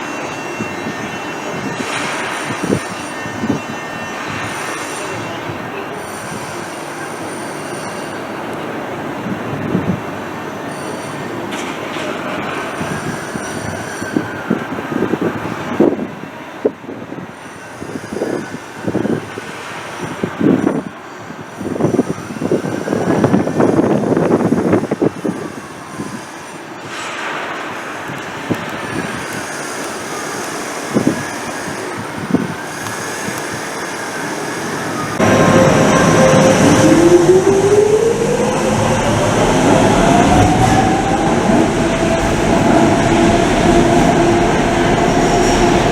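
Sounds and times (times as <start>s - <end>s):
train knocking and clatter: 0.0s - 16.1s, 35.2s - 45.9s
electric train whining: 0.0s - 45.9s.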